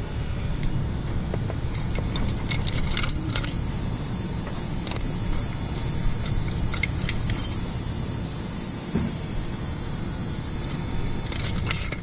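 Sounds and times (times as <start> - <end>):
insects chirring: 0.0 - 12.0
metallic clicks of hand tools: 1.4 - 3.6, 6.2 - 7.7, 11.2 - 12.0.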